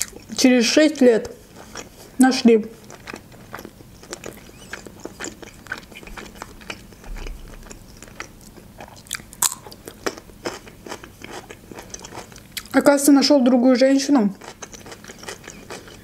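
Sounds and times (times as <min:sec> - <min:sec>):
person chewing food: 0:00.0 - 0:00.4, 0:01.2 - 0:12.8, 0:14.4 - 0:16.0
crunch of biting pickle: 0:03.0 - 0:12.7.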